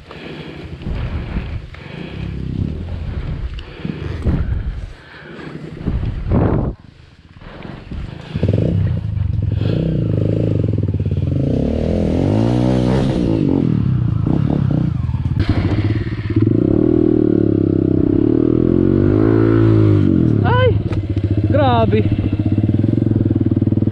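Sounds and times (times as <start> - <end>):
dirt bike engine revving: 8.1 - 23.9.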